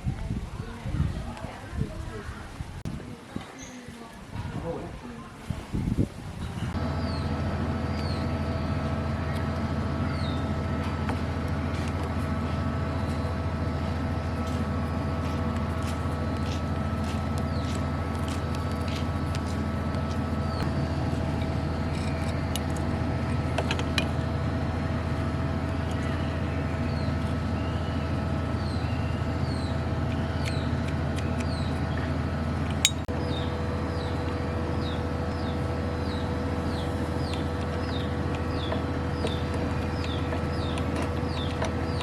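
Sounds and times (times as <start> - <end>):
low mechanical hum: 0.0 - 42.0
bird chirping: 32.9 - 42.0.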